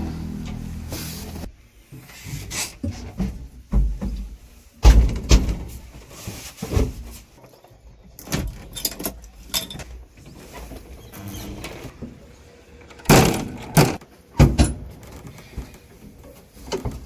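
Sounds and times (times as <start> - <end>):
low engine rumble: 0.0 - 1.6
machinery clunks and knocks: 3.2 - 5.8.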